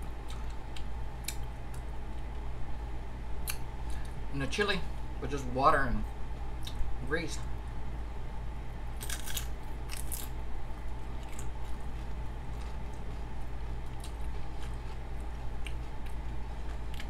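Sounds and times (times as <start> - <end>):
person chewing crunchy chips: 9.0 - 17.0.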